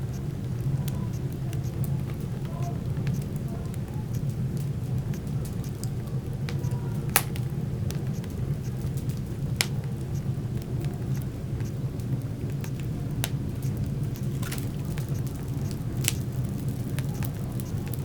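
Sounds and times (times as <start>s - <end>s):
fire crackling: 0.0s - 18.0s
low rumble of flames: 0.0s - 18.0s
sharp pops of fire: 0.0s - 18.0s.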